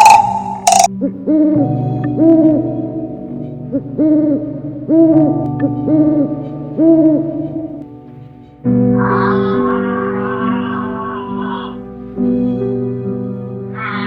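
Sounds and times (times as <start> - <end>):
steady background tone: 0.0 - 0.9.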